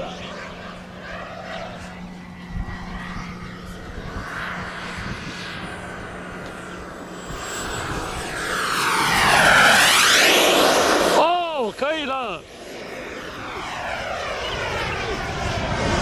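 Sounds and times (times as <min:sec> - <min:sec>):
model jet turbine whining: 0:00.0 - 0:16.0
wind rumbling on microphone: 0:01.2 - 0:11.2.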